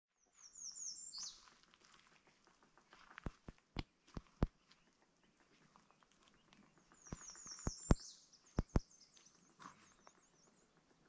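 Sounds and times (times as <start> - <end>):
quiet outdoor ambience: 0.1 - 11.0
songbird chirping: 0.1 - 11.0
sharp pops or clicks: 3.2 - 4.6, 7.0 - 8.9.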